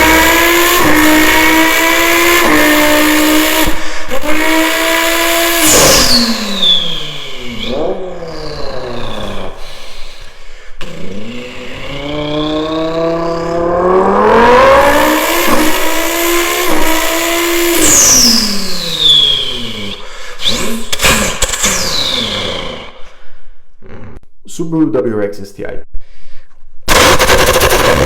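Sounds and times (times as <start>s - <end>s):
person imitating car engine: 0.0s - 23.1s, 23.8s - 24.2s
vocal crackles: 7.4s - 13.7s, 19.3s - 23.2s, 23.8s - 24.2s.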